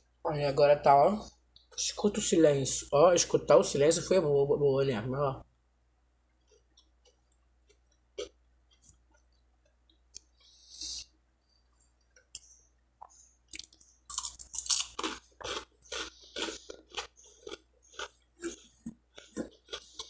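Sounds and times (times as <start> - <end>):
crunchy chewing of bread: 6.4 - 11.0, 11.9 - 20.0.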